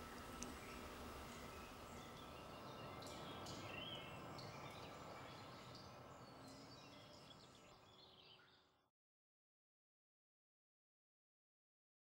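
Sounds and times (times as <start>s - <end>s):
steady low hiss: 0.0s - 7.2s.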